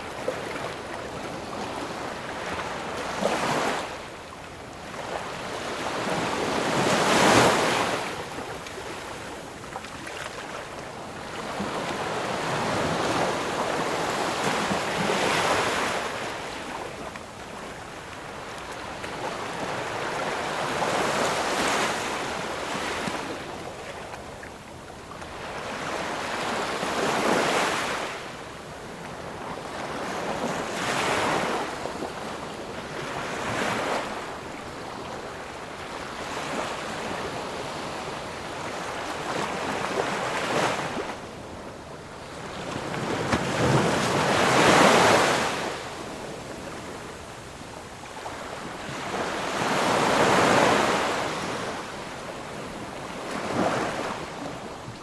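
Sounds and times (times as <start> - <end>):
waves breaking on shore: 25.1 - 55.0.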